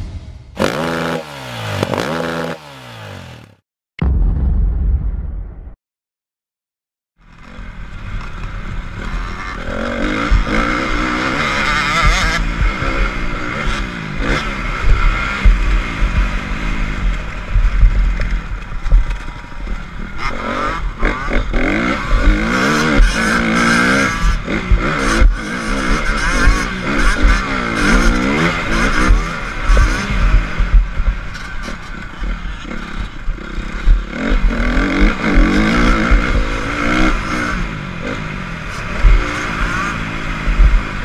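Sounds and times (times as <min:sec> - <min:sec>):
heavy low rumble: 0:00.0 - 0:00.6, 0:04.0 - 0:05.8
motorcycle engine revving: 0:00.3 - 0:03.6, 0:07.2 - 0:41.0.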